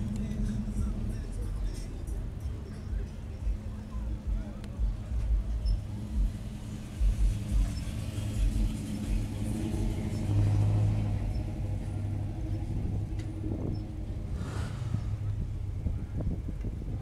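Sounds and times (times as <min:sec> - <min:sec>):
irregular low thumps: 0:00.0 - 0:09.3
car engine running at low revs: 0:00.0 - 0:17.0.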